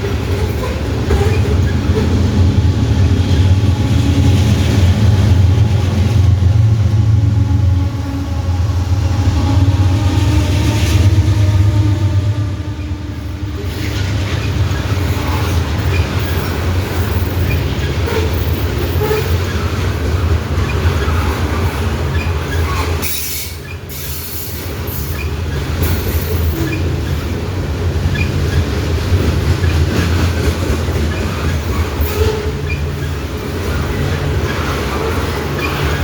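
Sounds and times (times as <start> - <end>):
wheels clicking over rail joints: 0.0 - 2.7, 13.5 - 36.0.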